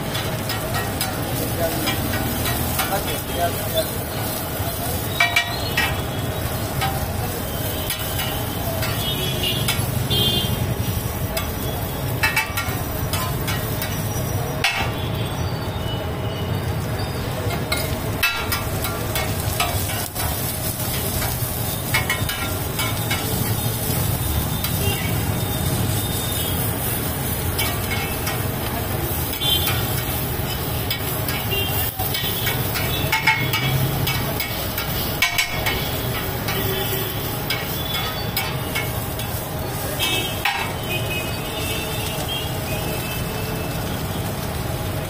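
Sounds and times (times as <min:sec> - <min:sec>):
food sizzling on a griddle: 0:00.0 - 0:45.0
metal spatulas scraping griddle: 0:29.1 - 0:36.7, 0:37.4 - 0:39.3.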